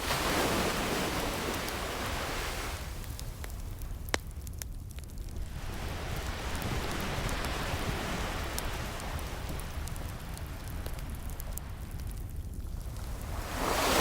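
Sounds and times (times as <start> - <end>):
ocean wave washing: 0.0 - 3.2, 5.4 - 12.0, 12.8 - 14.0
fireplace crackling: 0.0 - 14.0.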